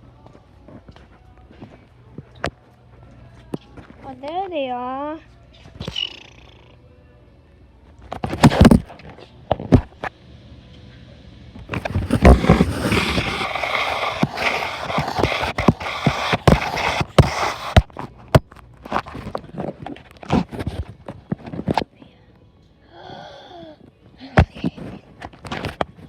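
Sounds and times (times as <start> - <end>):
items scraping and rattling: 11.8 - 18.1.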